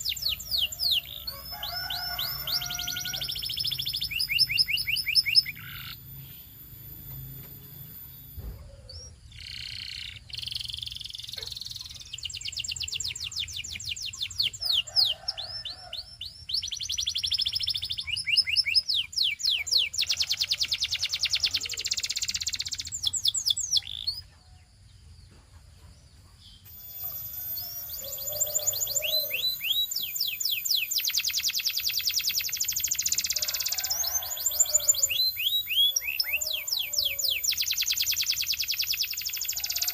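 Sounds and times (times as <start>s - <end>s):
canary singing trills: 0.0s - 24.7s, 26.3s - 39.9s.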